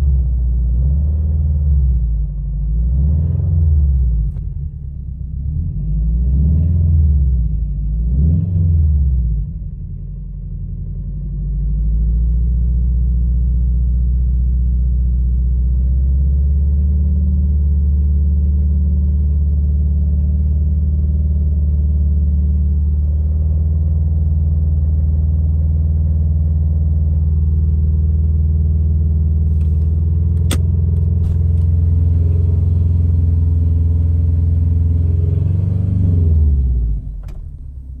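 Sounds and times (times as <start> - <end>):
car engine running: 9.1 - 38.0
engine rattle: 29.1 - 35.1, 36.5 - 38.0
sharp click: 29.5 - 31.8.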